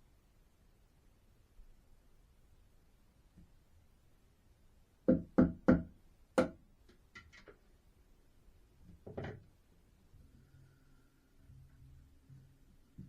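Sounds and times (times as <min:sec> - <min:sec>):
sharp knocks on wood: 0:05.1 - 0:06.6.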